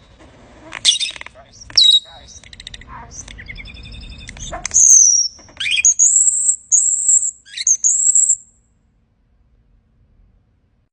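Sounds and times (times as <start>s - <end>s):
finch singing: 0.8s - 8.5s.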